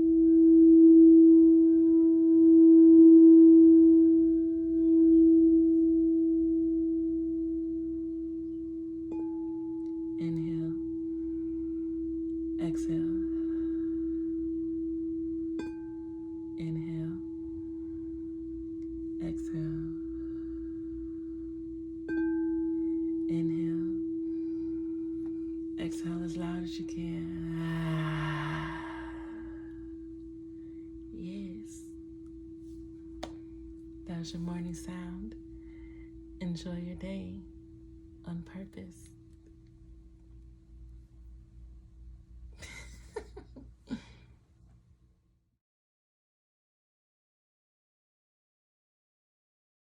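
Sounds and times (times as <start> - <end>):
higher-pitched bowl struck: 0.0 - 38.2
singing bowl ringing: 0.0 - 38.2
struck metal bowl ringing: 10.8 - 27.8.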